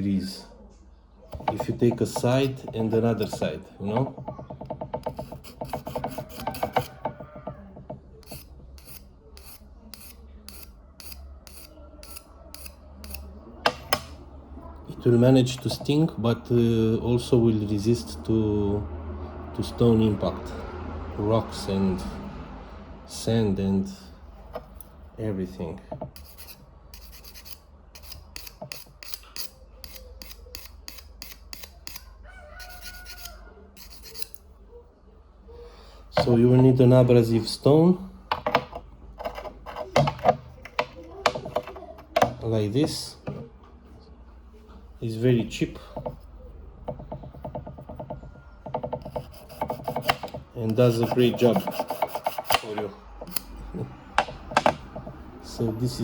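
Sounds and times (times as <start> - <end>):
sharpening stone rubbing on steel: 1.4 - 3.4, 4.0 - 7.2, 8.2 - 13.3, 26.1 - 34.5, 38.3 - 42.4, 46.9 - 53.6.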